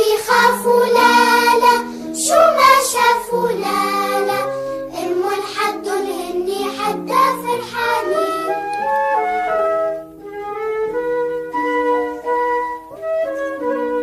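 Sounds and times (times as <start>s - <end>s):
child singing: 0.0s - 8.8s
synthesized backing with bass: 0.0s - 14.0s.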